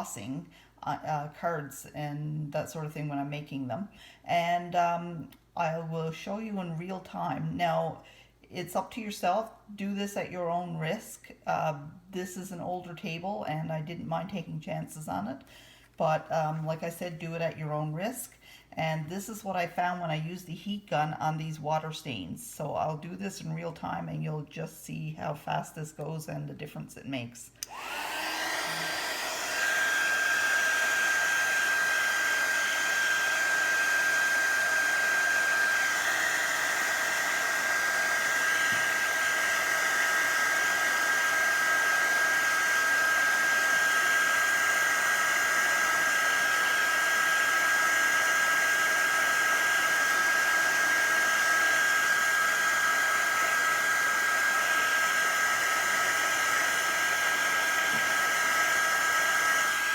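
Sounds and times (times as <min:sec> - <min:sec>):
heat gun blowing air: 0:27.6 - 0:59.9
fan motor whine: 0:27.7 - 0:39.1.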